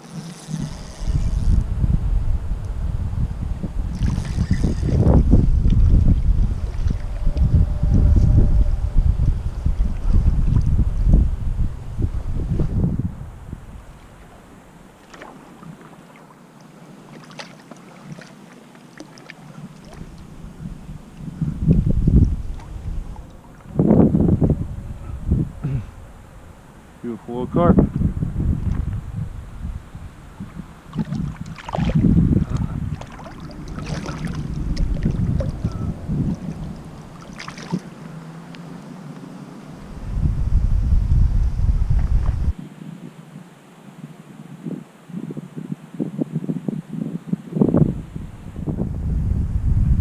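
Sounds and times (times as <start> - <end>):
wind buffeting microphone: 0.0 - 15.0, 19.7 - 43.2, 44.6 - 50.0
water sloshing and splashing: 3.9 - 7.8, 14.0 - 23.8, 30.4 - 39.9.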